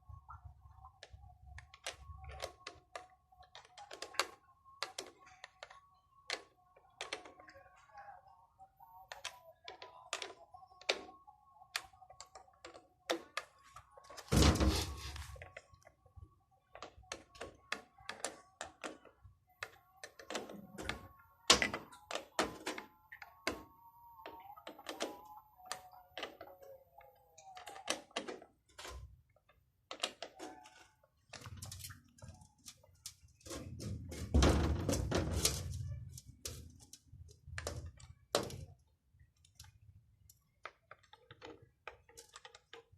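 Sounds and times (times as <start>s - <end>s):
tools clicking and knocking: 16.7s - 26.6s, 27.4s - 42.9s.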